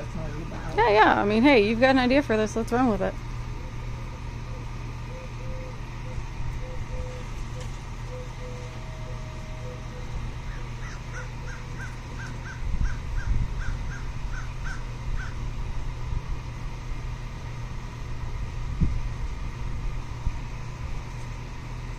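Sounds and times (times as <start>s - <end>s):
bird calling: 3.5s - 15.5s.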